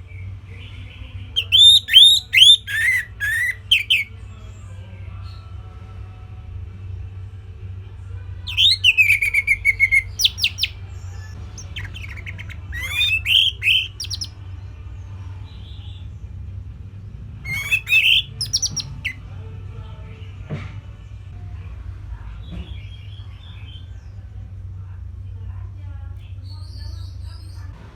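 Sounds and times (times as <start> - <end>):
steady low hum: 0.0 - 27.9
thrush singing: 0.6 - 4.6, 8.4 - 14.4, 17.4 - 20.3.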